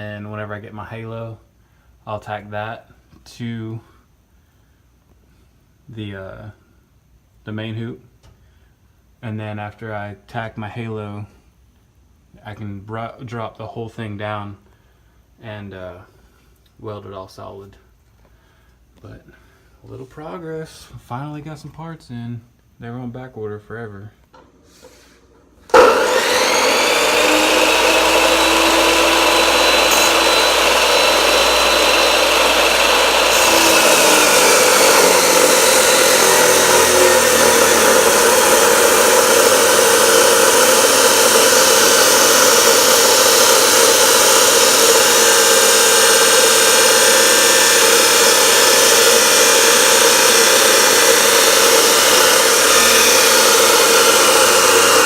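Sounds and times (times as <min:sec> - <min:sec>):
power tool running: 0:25.7 - 0:55.0.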